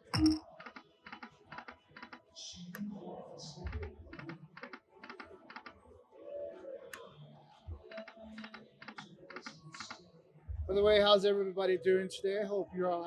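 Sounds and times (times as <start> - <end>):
soft electronic tones: 0.0 - 0.6.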